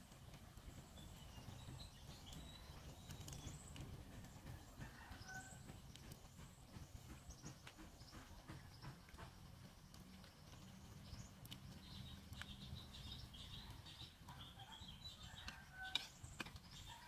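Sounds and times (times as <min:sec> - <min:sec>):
low steady background rumble: 0:00.0 - 0:17.0
faint bird chirps: 0:06.7 - 0:17.0.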